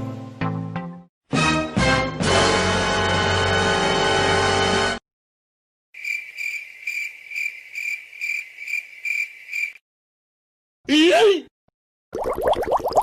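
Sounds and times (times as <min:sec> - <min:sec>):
cricket chirping: 0:06.0 - 0:09.8.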